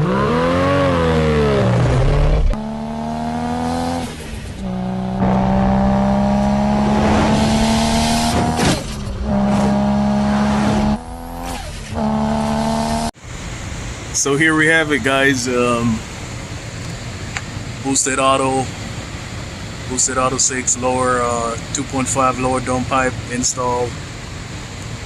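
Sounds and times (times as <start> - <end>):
car engine revving and accelerating: 0.0 - 13.2.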